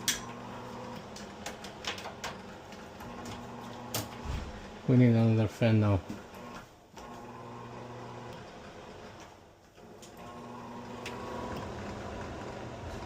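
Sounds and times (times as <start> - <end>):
range hood motor humming: 0.0 - 13.0.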